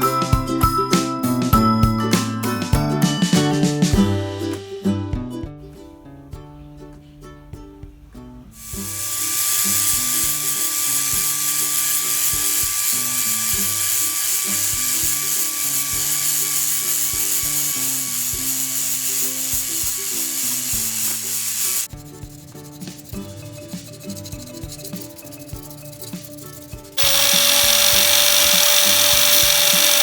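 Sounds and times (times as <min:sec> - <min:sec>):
plucked string music: 0:00.0 - 0:30.0
power tool hissing on metal: 0:08.6 - 0:21.9, 0:26.2 - 0:30.0.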